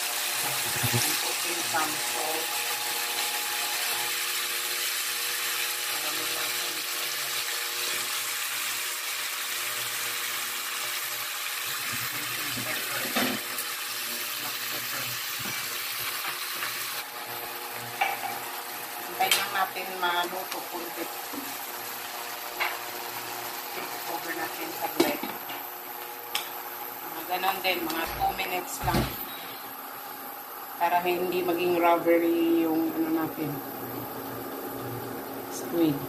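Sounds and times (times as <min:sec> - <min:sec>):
squid sizzling in a wok: 0:00.0 - 0:27.9
steady multi-tone hum: 0:00.3 - 0:03.6.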